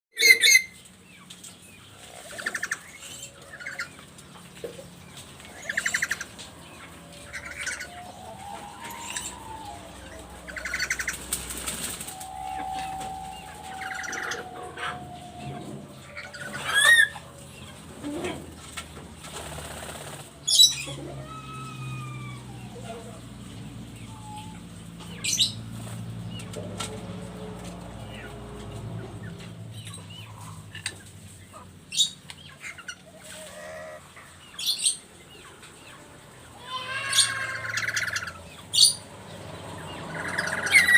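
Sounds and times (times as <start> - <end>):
loud rising squeals: 5.6 - 18.4, 20.4 - 25.7, 36.9 - 40.9
parrot calling: 6.9 - 17.3, 40.1 - 40.9.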